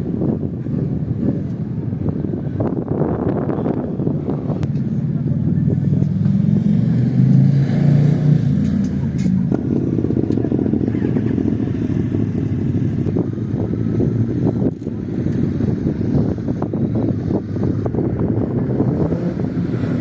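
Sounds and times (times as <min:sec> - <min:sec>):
motorcycle engine under load: 0:08.4 - 0:19.3.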